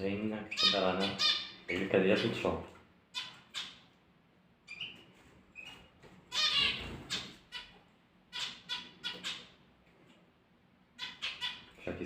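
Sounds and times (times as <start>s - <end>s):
small birds chirping: 0.0s - 10.1s, 10.9s - 12.0s.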